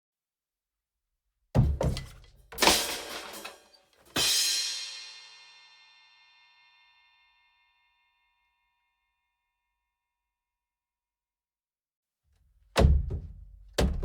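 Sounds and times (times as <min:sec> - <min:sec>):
clatter of drum hits: 0:01.6 - 0:04.4.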